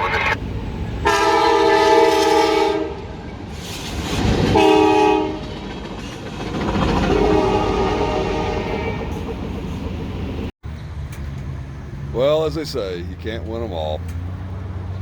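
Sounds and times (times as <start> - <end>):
train rumbling past: 0.0 - 13.0
locomotive air horn blasts: 1.0 - 3.1, 4.6 - 5.4, 7.1 - 9.1.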